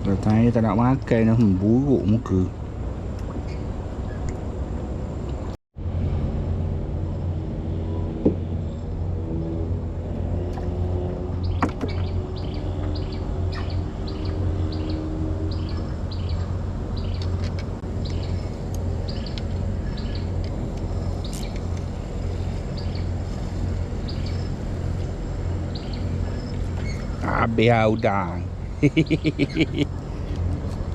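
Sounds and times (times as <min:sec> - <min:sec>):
low hum: 0:00.0 - 0:30.9
small bird chirping: 0:11.4 - 0:17.3, 0:18.0 - 0:20.4, 0:21.0 - 0:23.1.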